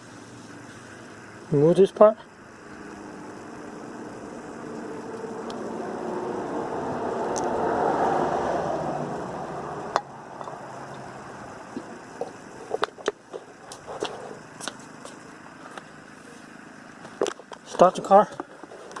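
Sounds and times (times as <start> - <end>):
motor vehicle passing by: 2.2 - 12.8.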